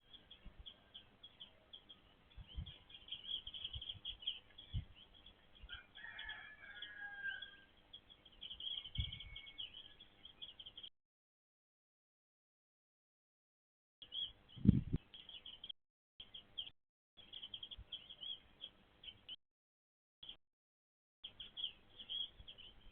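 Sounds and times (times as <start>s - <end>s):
small birds chirping: 0.0s - 10.9s, 14.0s - 19.4s, 21.2s - 22.9s.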